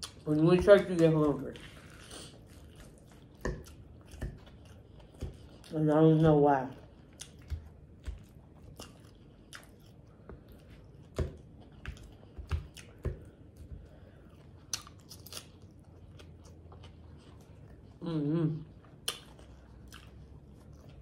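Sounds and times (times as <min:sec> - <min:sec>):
wet chewing mouth sounds: 0:00.0 - 0:21.0
lettuce crunching: 0:14.3 - 0:17.6.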